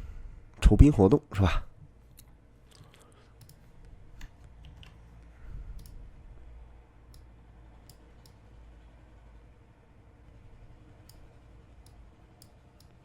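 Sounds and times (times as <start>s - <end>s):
low steady hum: 0.0s - 13.0s
computer mouse clicks: 2.1s - 6.0s, 7.1s - 8.5s, 11.0s - 13.0s.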